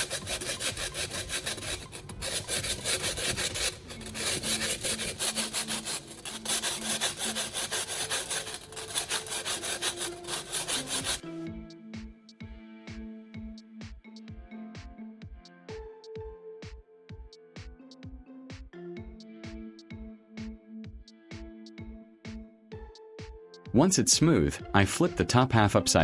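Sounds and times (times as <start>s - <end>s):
sanding metal edge: 0.0s - 11.3s
background music: 0.0s - 26.0s.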